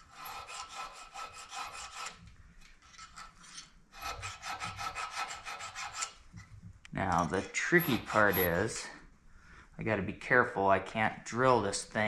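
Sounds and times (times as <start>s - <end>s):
file rasping on steel: 0.0s - 2.2s, 2.8s - 6.2s, 7.6s - 8.8s.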